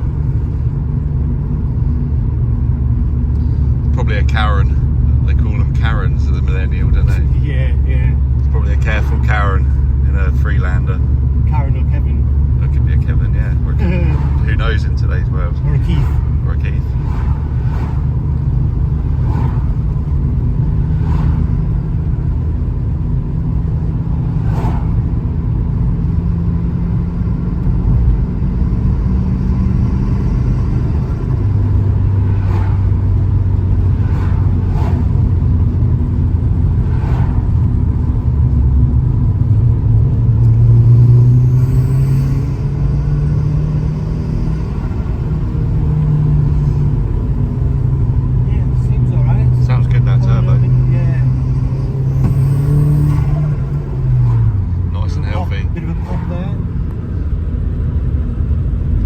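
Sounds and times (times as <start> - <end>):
car engine: 0.0 - 59.0
road noise: 0.0 - 59.0.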